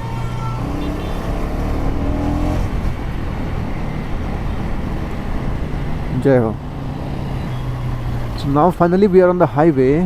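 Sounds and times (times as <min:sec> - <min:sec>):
motorcycle engine accelerating: 0:00.0 - 0:06.1
road noise: 0:00.0 - 0:10.0.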